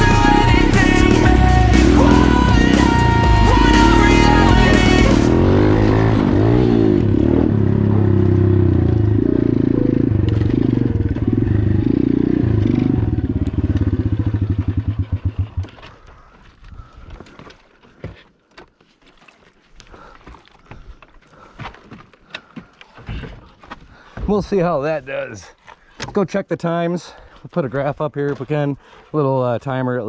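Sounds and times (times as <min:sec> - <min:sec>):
motorbike engine revving through gears: 0:00.0 - 0:15.8.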